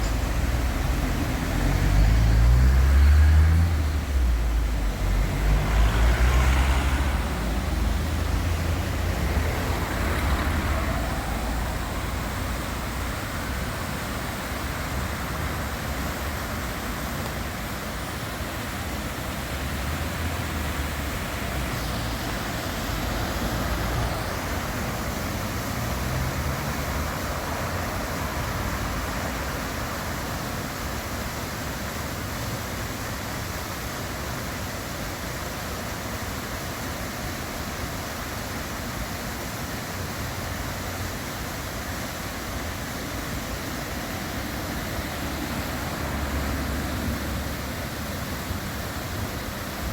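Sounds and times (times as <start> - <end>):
steady traffic hum: 0.0 - 49.9
vehicle passing with deep rumble: 0.1 - 16.5, 19.2 - 30.0, 43.6 - 49.9.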